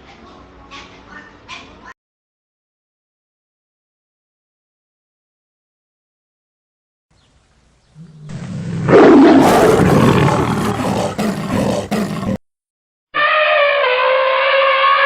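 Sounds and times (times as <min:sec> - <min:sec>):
animal roar: 0:08.0 - 0:12.4.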